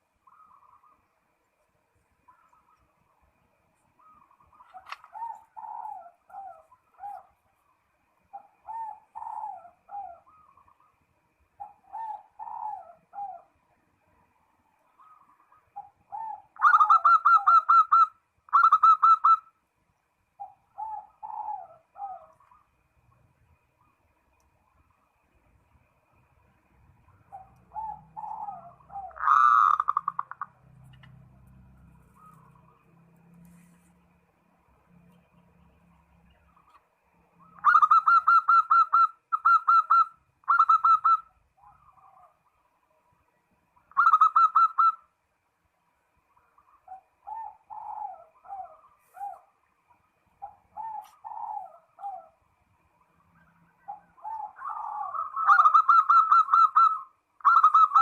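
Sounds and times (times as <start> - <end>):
dove cooing: 4.0 - 7.4, 8.3 - 10.8, 11.6 - 13.6, 15.0 - 19.4, 20.4 - 22.6, 27.1 - 31.1, 37.4 - 42.5, 43.9 - 45.0, 46.8 - 49.6, 50.4 - 52.4, 53.8 - 58.0.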